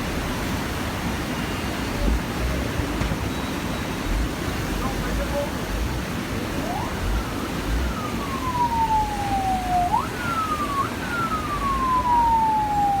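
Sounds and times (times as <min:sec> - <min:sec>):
siren wailing: 0:05.7 - 0:13.0.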